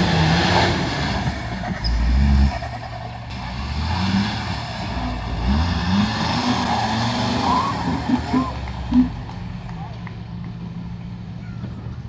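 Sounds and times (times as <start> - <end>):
engine revving: 0.0 - 9.5.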